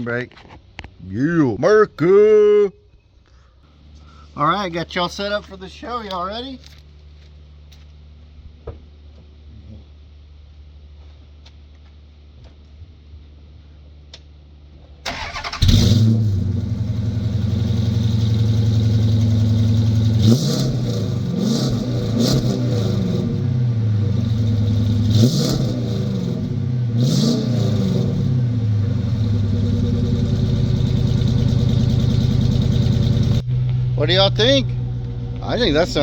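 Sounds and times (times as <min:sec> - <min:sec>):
car engine cranking and idling: 0:15.1 - 0:36.0
engine throttle blips: 0:15.1 - 0:36.0.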